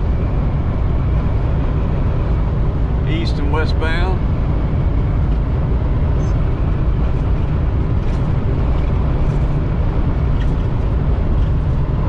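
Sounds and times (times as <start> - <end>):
truck cab road and engine rumble: 0.0 - 12.0.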